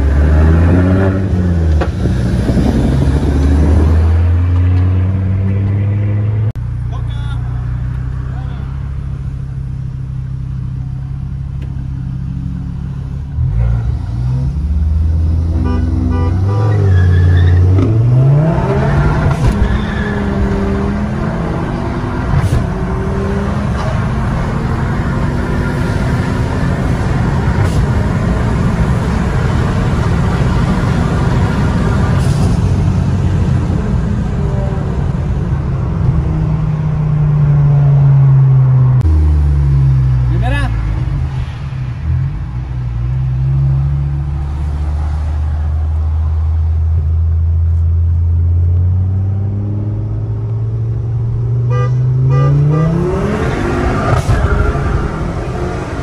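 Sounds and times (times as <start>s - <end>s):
car engine accelerating hard: 0.0s - 6.6s.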